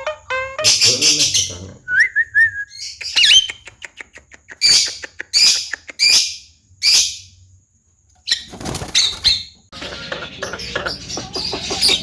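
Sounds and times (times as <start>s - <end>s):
bird whistling and clicking: 2.4s - 6.2s
bird harsh rasping calls: 8.3s - 12.0s.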